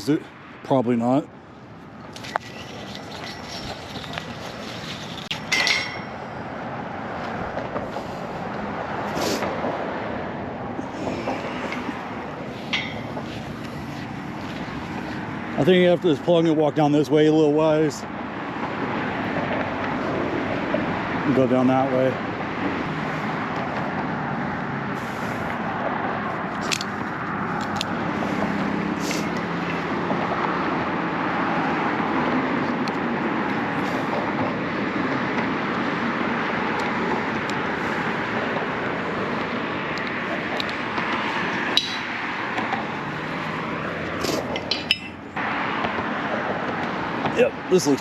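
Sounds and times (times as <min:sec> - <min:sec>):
road traffic hum: 0:00.0 - 0:48.0
sharp clicks and clinks: 0:02.1 - 0:06.2, 0:44.5 - 0:45.2.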